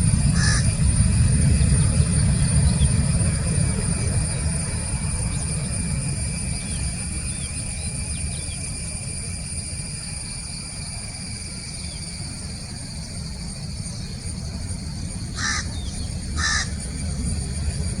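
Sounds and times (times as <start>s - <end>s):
steady low rumble: 0.0s - 18.0s
crow cawing: 0.3s - 0.7s, 15.4s - 15.8s, 16.4s - 16.8s.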